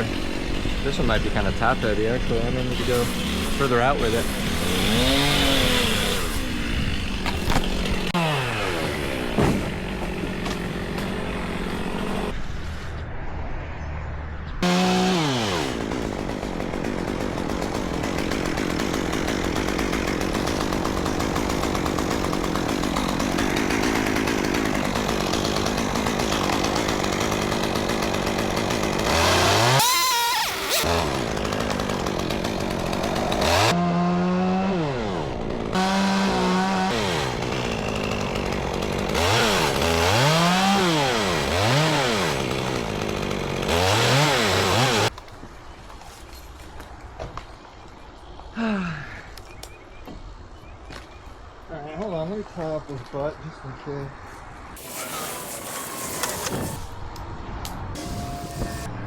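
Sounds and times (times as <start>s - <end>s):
chainsaw cutting wood: 0.0s - 12.4s, 14.6s - 45.2s, 54.7s - 57.2s, 57.9s - 58.9s.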